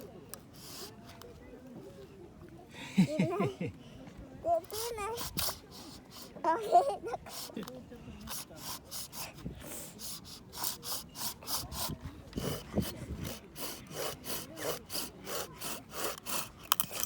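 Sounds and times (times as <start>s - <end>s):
hand saw cutting wood: 10.1s - 17.0s.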